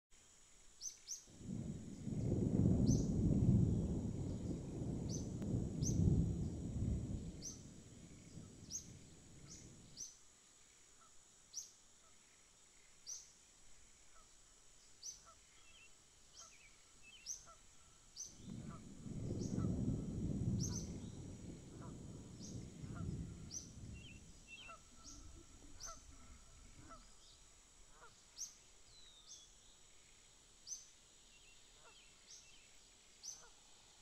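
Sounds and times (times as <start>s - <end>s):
loud low rumbling: 1.4s - 9.9s, 18.4s - 26.3s
bird chirping: 22.4s - 26.1s.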